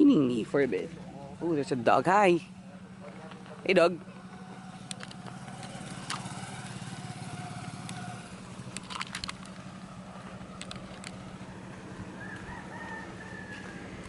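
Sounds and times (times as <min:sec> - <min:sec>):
small engine idling: 0:00.0 - 0:14.0
sharp clicks: 0:04.8 - 0:06.8, 0:07.6 - 0:09.7, 0:10.4 - 0:11.3.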